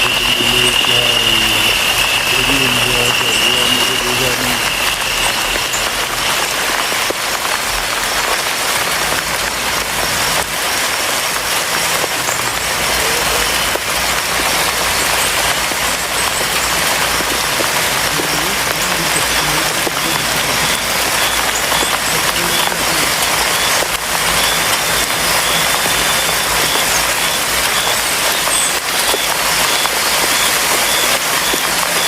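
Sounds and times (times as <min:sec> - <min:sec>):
faint higher tones: 0:00.0 - 0:06.9
hiss of falling water: 0:00.0 - 0:32.0.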